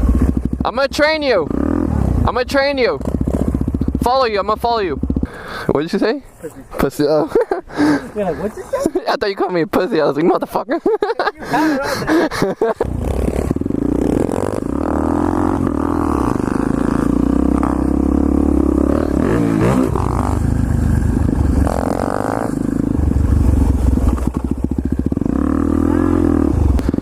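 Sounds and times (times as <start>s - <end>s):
motorcycle engine running: 0.0s - 5.5s, 12.8s - 27.0s.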